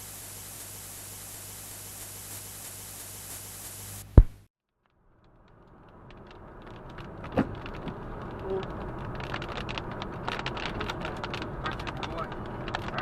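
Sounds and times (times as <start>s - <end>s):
sharp thump: 4.1s - 4.5s
road noise: 5.0s - 13.0s
raindrops ticking: 5.1s - 13.0s.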